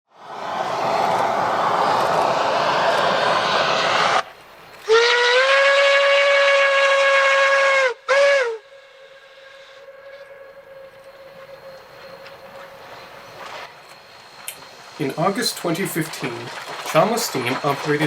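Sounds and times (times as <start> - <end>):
steam hissing: 0.2 - 18.0
steam whistle blasts: 4.8 - 14.4
faint steady tone: 8.6 - 18.0.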